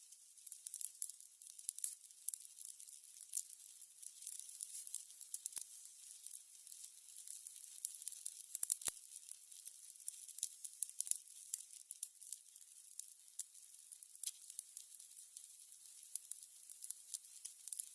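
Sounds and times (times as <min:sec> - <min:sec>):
candles crackling: 0:00.0 - 0:17.9.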